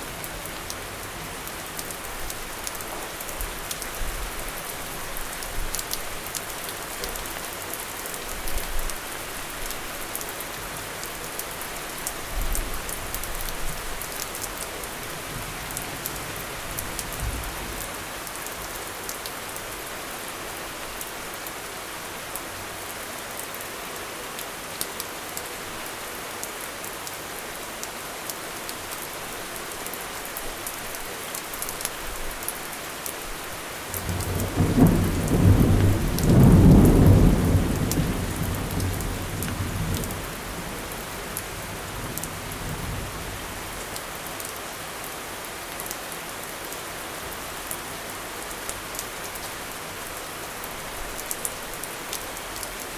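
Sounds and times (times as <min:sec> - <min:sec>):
steady rain falling: 0:00.0 - 0:52.9
thunder rumble: 0:34.0 - 0:40.5.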